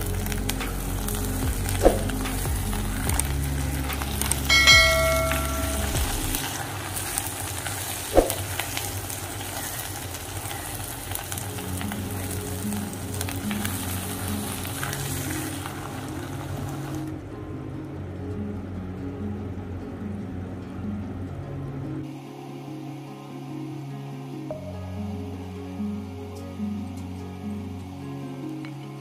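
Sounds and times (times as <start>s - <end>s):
food sizzling in ghee: 0.0s - 17.1s
bright chime: 4.5s - 6.4s.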